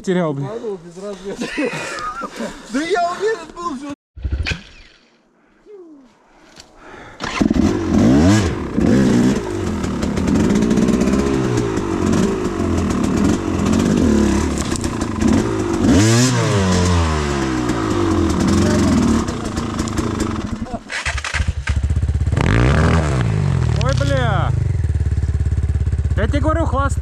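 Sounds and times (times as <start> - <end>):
motorcycle engine revving: 7.2 - 27.0.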